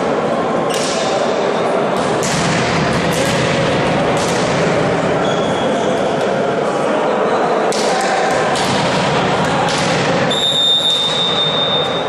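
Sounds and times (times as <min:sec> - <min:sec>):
sports hall din: 0:00.0 - 0:12.0
ball impacts: 0:07.7 - 0:10.3.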